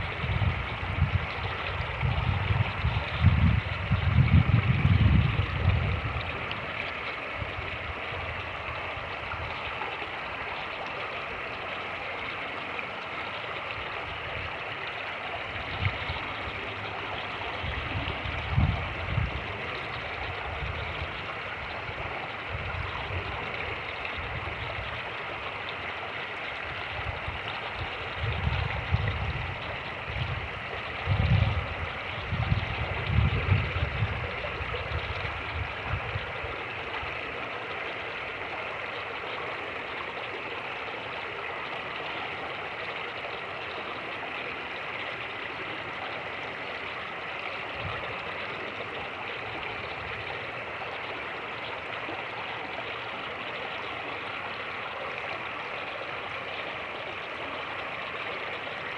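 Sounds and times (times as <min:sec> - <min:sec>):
wind buffeting microphone: 0:00.0 - 0:06.7, 0:15.5 - 0:25.0, 0:26.9 - 0:37.2
creek rushing: 0:00.0 - 0:58.9.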